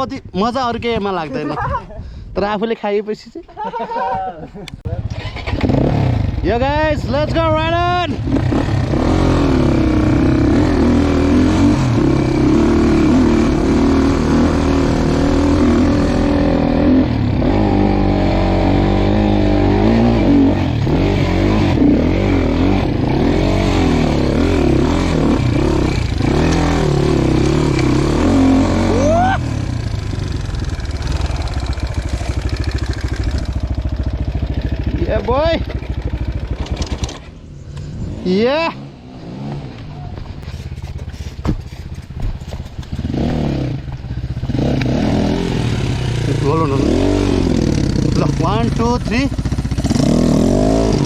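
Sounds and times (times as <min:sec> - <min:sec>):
dirt bike engine revving: 0:05.0 - 0:51.0.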